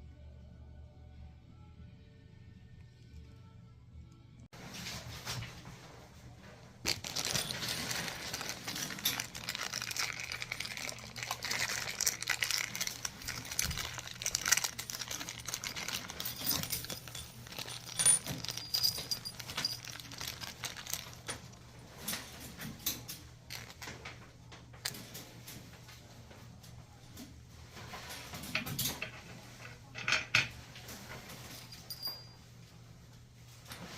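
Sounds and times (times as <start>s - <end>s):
plastic crinkling: 6.8s - 21.6s, 23.5s - 24.0s
small hard parts clicking: 6.8s - 22.2s, 22.8s - 24.1s.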